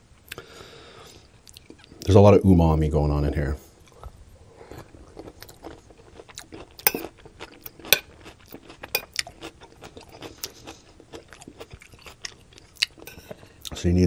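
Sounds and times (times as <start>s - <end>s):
chewing and crunching: 3.8s - 13.9s
metal spoon scraping plate: 13.0s - 13.4s.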